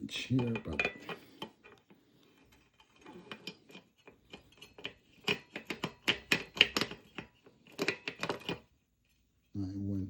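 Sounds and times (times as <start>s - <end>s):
sharp knocks and clicks: 3.4s - 8.6s.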